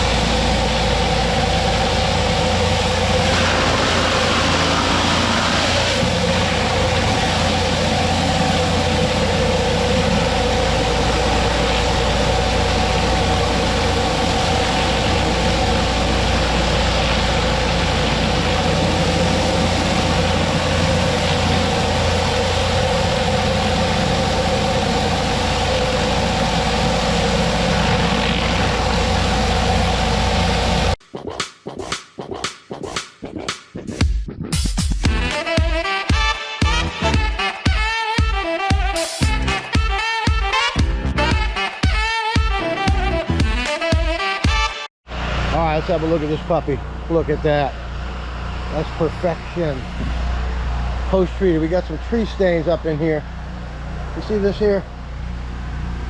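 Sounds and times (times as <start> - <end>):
low engine drone: 0.0 - 31.0, 35.0 - 37.7, 39.2 - 41.9, 42.5 - 43.7, 45.1 - 56.0
pressure washer spray hissing: 0.0 - 31.0
electronic music: 25.6 - 44.9.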